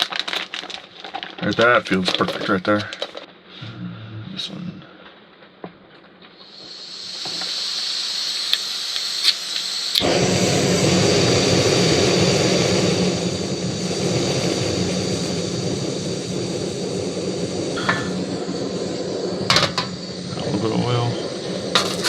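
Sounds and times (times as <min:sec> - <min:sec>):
gas hissing from burner: 0:00.0 - 0:03.3, 0:06.2 - 0:22.0
burner lighting with rush: 0:00.0 - 0:03.4, 0:06.0 - 0:22.0
sharp igniter clicks: 0:06.3 - 0:22.0.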